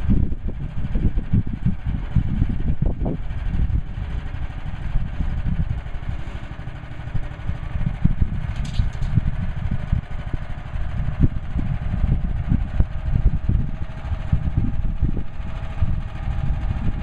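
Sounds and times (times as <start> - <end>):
gas engine chugging: 0.1 - 17.0.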